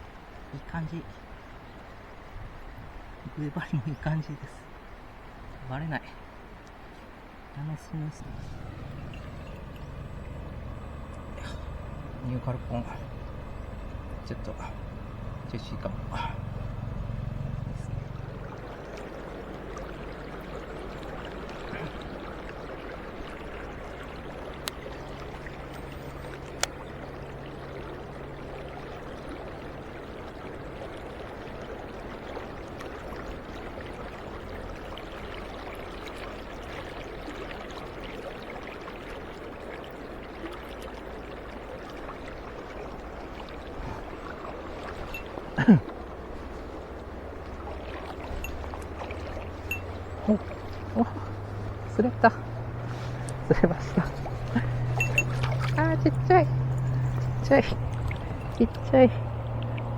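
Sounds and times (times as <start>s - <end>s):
stream water rushing: 0.0s - 59.9s
faint clicks: 6.6s - 6.8s.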